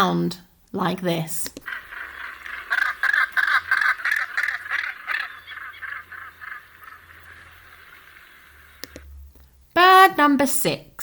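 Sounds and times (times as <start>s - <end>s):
gannet harsh calls: 1.6s - 8.8s.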